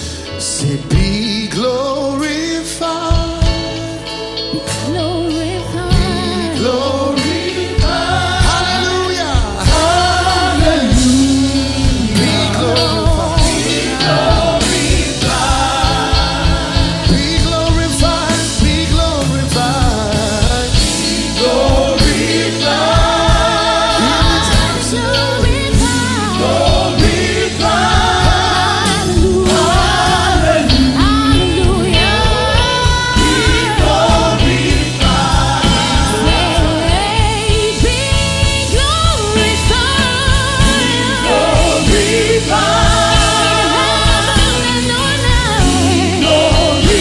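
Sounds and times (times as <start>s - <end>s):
backing band: 0.0s - 47.0s
gospel choir singing: 0.0s - 47.0s.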